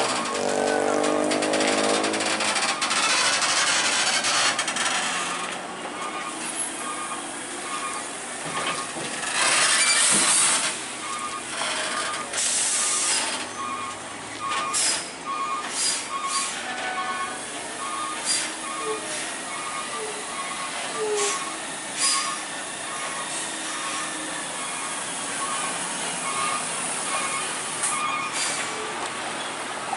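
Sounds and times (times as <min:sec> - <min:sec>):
heavy truck running: 0:00.0 - 0:29.9
air brake hiss: 0:15.7 - 0:16.6, 0:21.2 - 0:22.4.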